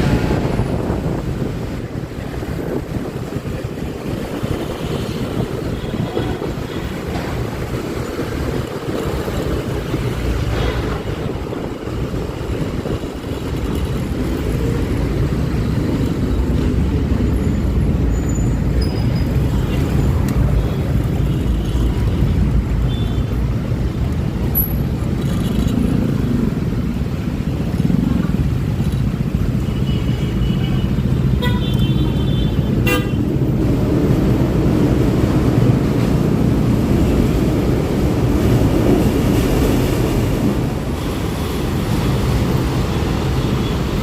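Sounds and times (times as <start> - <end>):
wind noise: 0.0 - 29.6
vehicle horn toots: 31.4 - 33.2.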